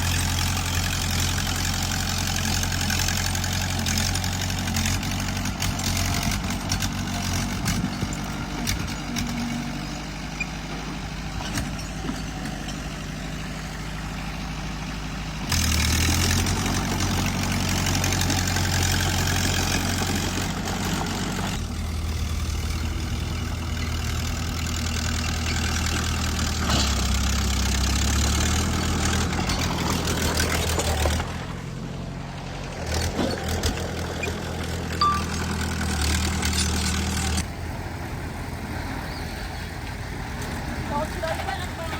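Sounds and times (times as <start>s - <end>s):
bulldozer diesel engine: 0.0s - 41.9s
metallic clanks: 35.0s - 37.1s.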